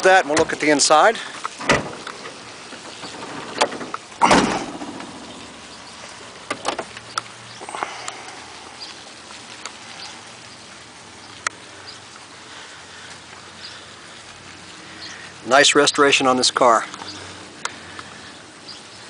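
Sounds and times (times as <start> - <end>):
car trunk lid thump: 1.6 - 2.0, 3.6 - 5.0
light clicks and knocks: 6.4 - 7.3.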